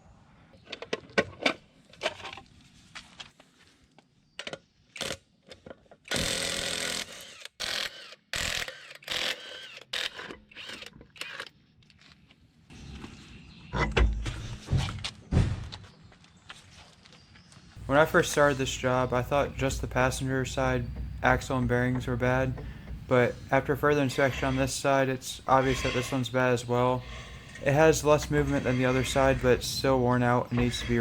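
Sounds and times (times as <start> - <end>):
heavy thuds: 13.9 - 15.9, 19.1 - 23.7
wheel clunks and knocks: 17.8 - 23.8.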